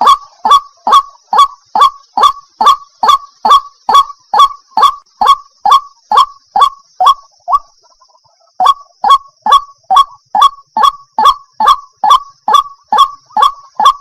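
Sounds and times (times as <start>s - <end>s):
bird croaking calls: 0.0s - 14.0s.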